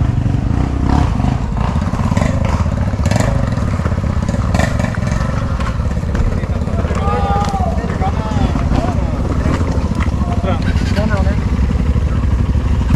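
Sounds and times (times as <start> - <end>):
dirt bike engine running: 0.0 - 12.9
bike knocking over rough ground: 2.2 - 11.2.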